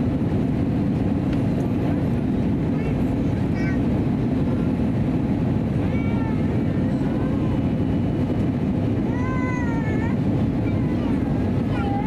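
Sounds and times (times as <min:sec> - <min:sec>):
airplane cabin drone: 0:00.0 - 0:12.0
child whining cries: 0:05.9 - 0:07.5, 0:09.1 - 0:12.0.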